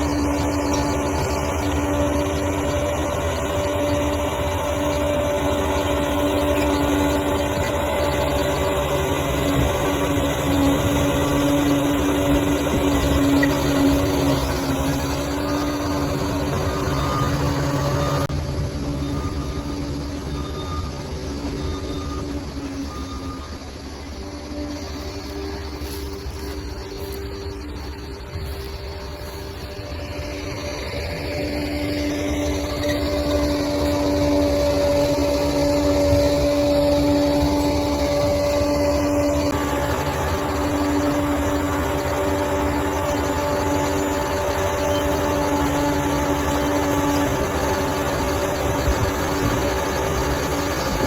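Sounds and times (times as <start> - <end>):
diesel engine rumbling: 0.0 - 51.0
steady whine: 0.0 - 51.0.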